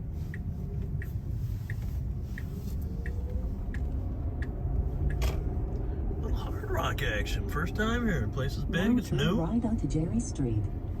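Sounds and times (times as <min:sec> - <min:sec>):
turn signal ticking: 0:00.0 - 0:06.5
car engine and tyre rumble: 0:00.0 - 0:11.0.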